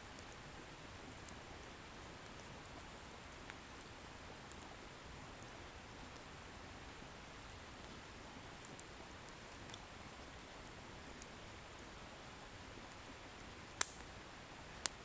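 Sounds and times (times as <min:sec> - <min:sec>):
firewood crackles and pops: 0:08.6 - 0:09.8, 0:13.6 - 0:15.0.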